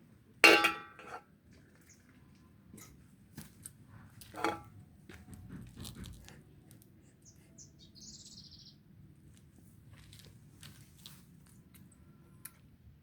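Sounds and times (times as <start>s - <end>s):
cutlery clinking on a plate: 0.4s - 1.2s, 4.4s - 4.7s
high trilled bird chirp: 7.6s - 8.8s.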